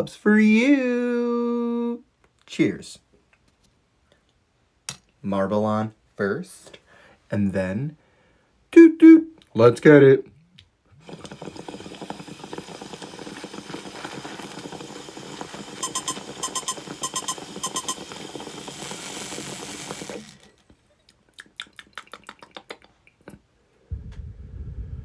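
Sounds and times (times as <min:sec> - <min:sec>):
water bubbling in glass pipe: 0:11.0 - 0:18.8
short electronic beeps: 0:15.8 - 0:18.3
low blowing gust: 0:23.9 - 0:25.0.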